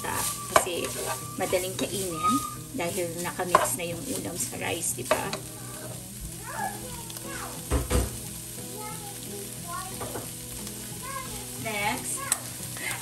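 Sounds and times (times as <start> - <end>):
spatula stirring: 0.0 - 6.1
food sizzling in a pot: 0.0 - 13.0
knock: 7.7 - 8.2.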